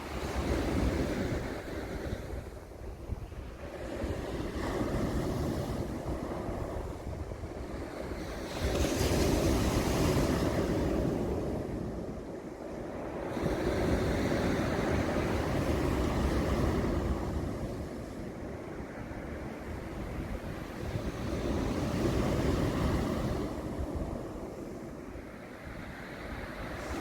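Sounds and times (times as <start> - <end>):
wind rumbling on microphone: 0.0 - 27.0.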